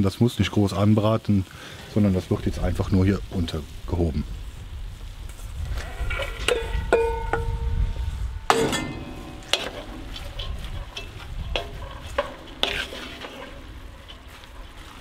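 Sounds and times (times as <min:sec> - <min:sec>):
food sizzling in a pot: 0:00.0 - 0:15.0
metal bowl ringing against pot: 0:06.5 - 0:07.7, 0:08.5 - 0:13.5
wooden spoon scraping a pot: 0:08.5 - 0:15.0.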